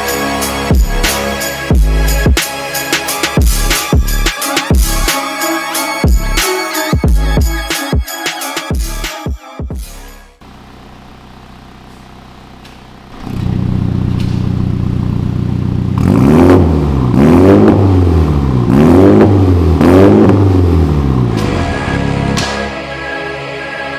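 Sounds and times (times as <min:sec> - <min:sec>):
car engine idling and revving: 0:00.0 - 0:02.4, 0:03.0 - 0:05.1, 0:10.4 - 0:22.7.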